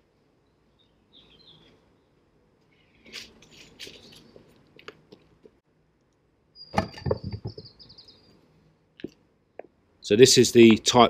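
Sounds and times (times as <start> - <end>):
small bird singing a trill: 0.4 - 2.1, 6.5 - 8.4
footsteps: 3.0 - 5.6.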